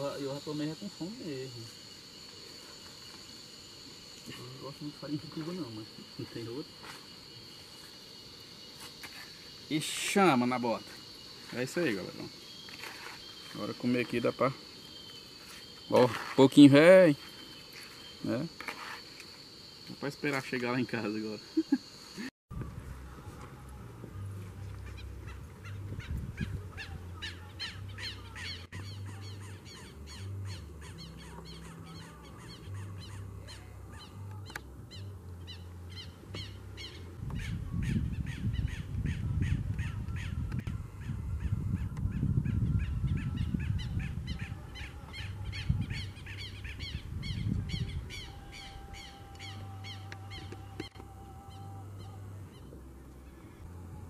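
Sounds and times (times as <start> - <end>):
wind buffeting microphone: 25.0 - 28.0, 36.9 - 48.9.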